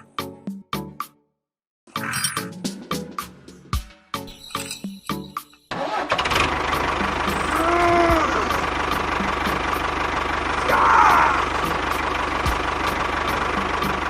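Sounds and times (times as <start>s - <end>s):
engine rasp: 5.7s - 14.0s
small engine idling: 5.8s - 14.0s.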